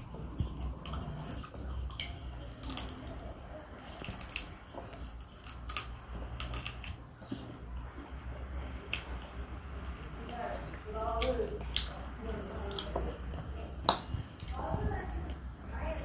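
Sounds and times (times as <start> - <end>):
toddler chewing with wet smacks: 0.0 - 15.5.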